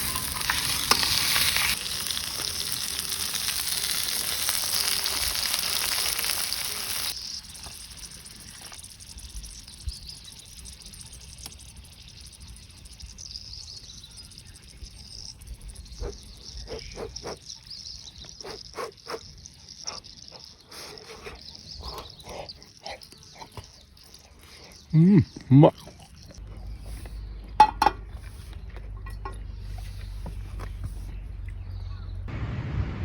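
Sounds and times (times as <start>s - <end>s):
food sizzling in a hot pan: 0.0s - 16.6s.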